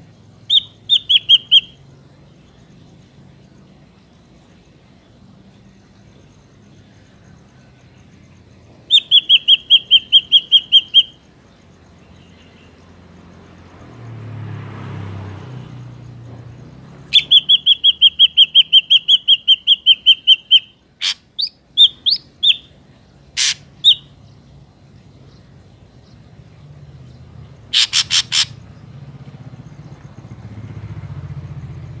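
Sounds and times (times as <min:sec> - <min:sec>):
bird calling sharp notes: 0:00.5 - 0:01.8, 0:08.8 - 0:11.2, 0:17.1 - 0:24.2, 0:27.7 - 0:28.6.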